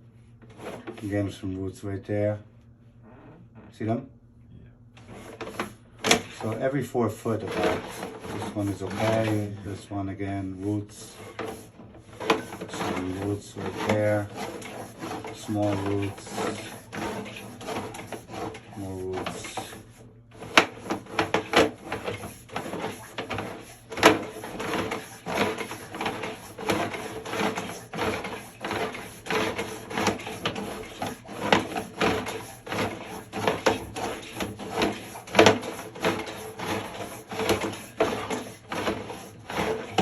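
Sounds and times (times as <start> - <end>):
cable reel clicking and knocking: 11.2 - 40.0.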